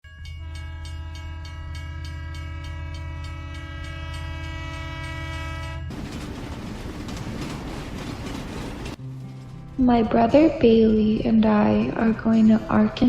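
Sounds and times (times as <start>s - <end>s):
train horn blast: 0.4s - 5.9s
train clattering on tracks: 0.8s - 12.8s.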